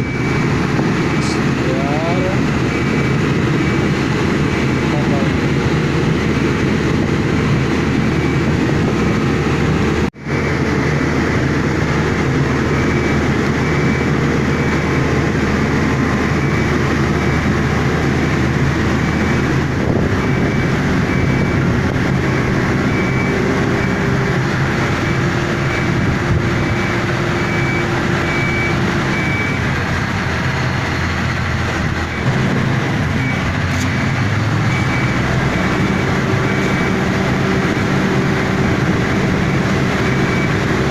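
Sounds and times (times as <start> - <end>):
high warning beep: 0.0 - 3.9, 16.0 - 18.3, 20.2 - 24.3, 25.0 - 29.8, 33.1 - 40.8
diesel machinery running: 0.0 - 40.9.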